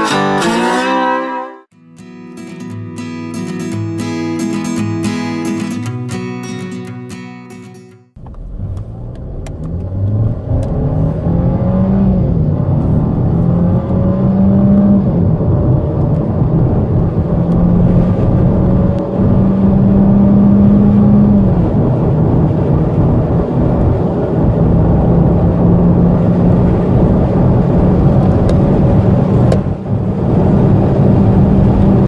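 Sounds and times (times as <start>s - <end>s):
car engine accelerating: 8.2s - 32.0s.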